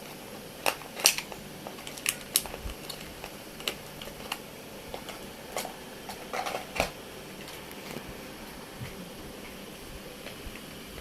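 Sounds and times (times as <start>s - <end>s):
clicks of small hard parts: 0.6s - 4.4s.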